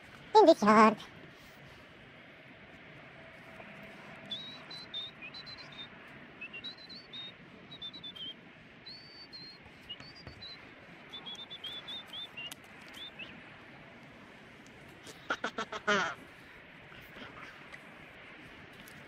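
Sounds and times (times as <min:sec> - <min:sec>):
faint outdoor background hiss: 0:00.0 - 0:19.0
small bird chirping: 0:04.3 - 0:13.3.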